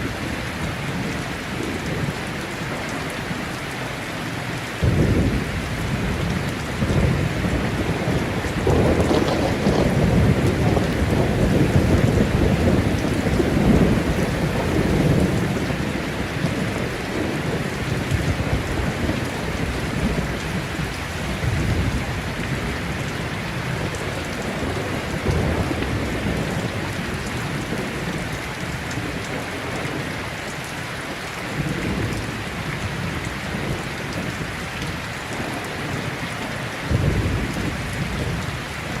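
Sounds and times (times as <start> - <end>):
heavy rain falling: 0.0 - 39.0
thunder rumbling: 4.8 - 30.2.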